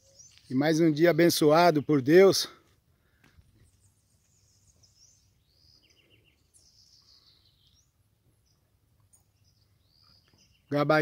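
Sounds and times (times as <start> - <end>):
faint bird calls: 3.0 - 10.8.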